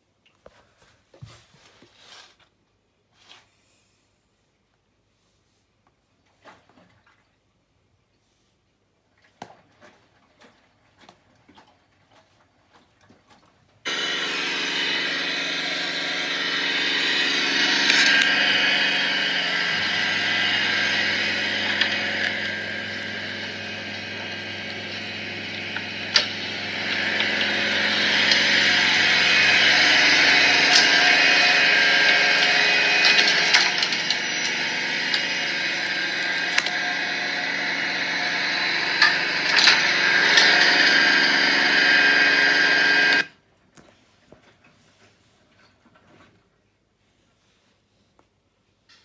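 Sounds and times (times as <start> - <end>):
faint drips and ticks: 9.2 - 13.7
deep hum: 13.9 - 43.2
washing machine spinning: 13.9 - 43.3.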